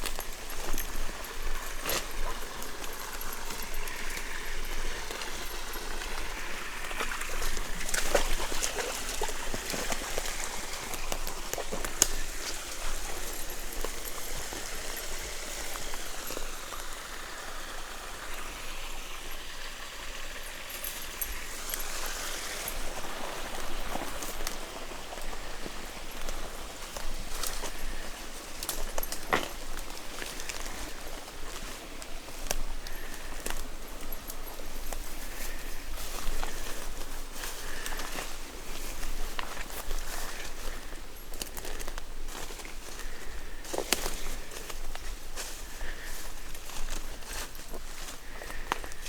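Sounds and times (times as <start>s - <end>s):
dog wading through water: 0.0s - 49.0s
stream water trickling: 0.0s - 49.0s.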